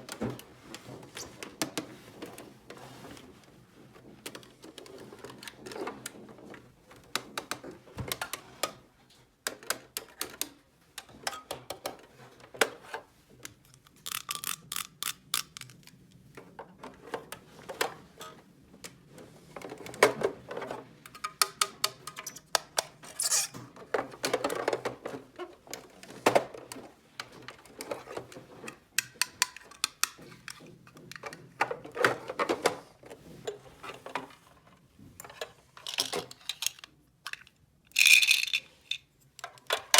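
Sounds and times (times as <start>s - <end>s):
plastic toy pieces clattering: 13.5s - 16.0s, 35.3s - 39.9s.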